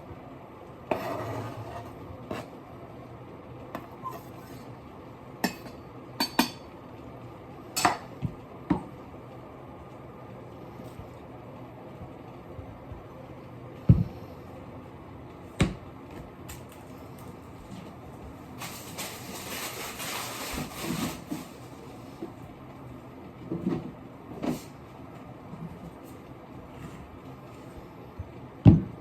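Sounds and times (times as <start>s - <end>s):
noisy hiss and rustle: 16.4s - 28.2s.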